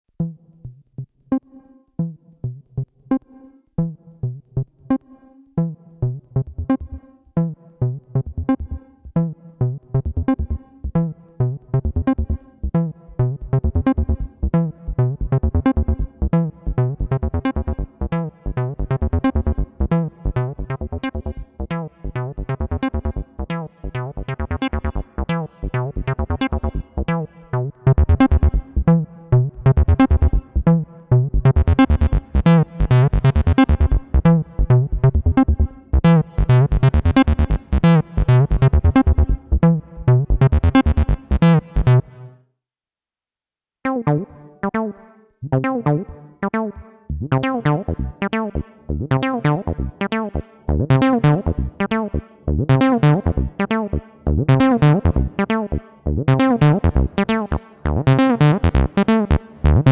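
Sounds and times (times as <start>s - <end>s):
acid synth bassline: 5.6s - 42.4s, 43.9s - 59.9s.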